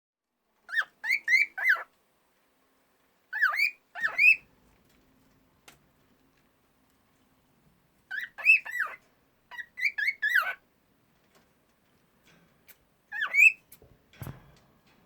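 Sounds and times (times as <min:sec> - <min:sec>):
cockatiel whistling: 0:03.4 - 0:04.4, 0:08.1 - 0:10.6.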